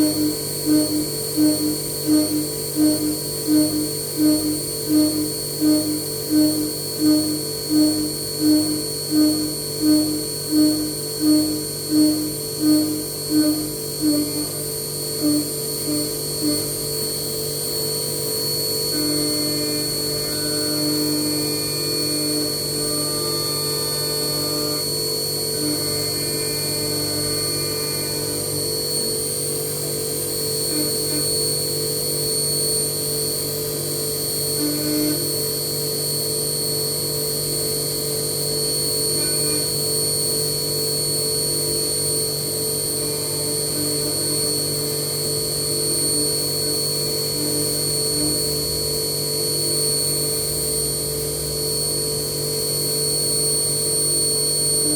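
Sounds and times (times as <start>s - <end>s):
milling machine cutting: 0.0s - 16.8s, 18.9s - 29.6s.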